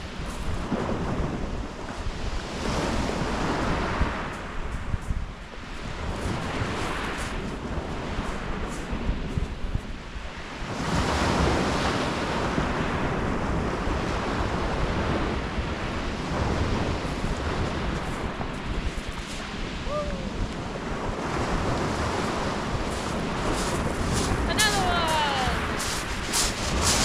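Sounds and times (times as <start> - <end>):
wind buffeting microphone: 0.0 - 27.0
waves breaking on shingle: 15.7 - 27.0.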